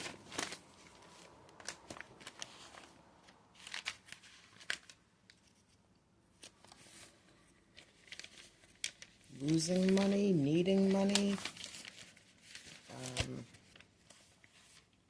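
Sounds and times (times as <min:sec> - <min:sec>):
paper cards rustling and tapping: 0:07.8 - 0:14.9.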